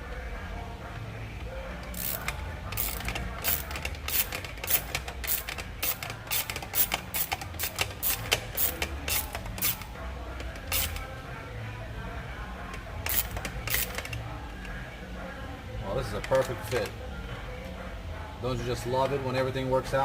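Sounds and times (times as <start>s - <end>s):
socket ratchet clicking: 1.9s - 9.9s, 10.6s - 11.0s.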